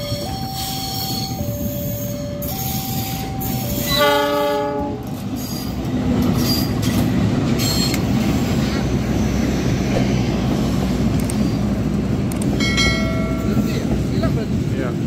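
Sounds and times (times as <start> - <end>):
two-tone level crossing alarm: 0.0 - 4.6
train engine and wheel noise: 0.0 - 15.0
locomotive horn: 1.9 - 5.1.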